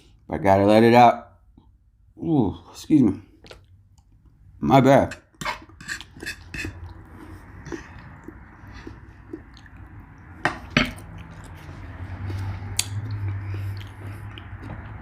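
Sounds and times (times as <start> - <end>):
soft chewing: 3.2 - 4.4, 5.6 - 15.0.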